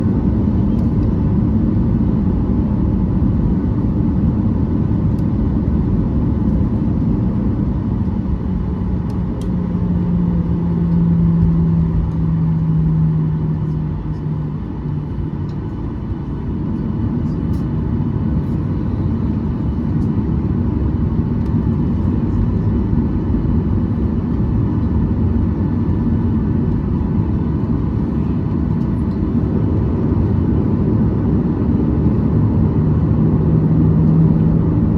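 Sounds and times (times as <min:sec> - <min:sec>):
aircraft engines low rumble: 0:00.0 - 0:34.9
low hum: 0:00.0 - 0:34.9.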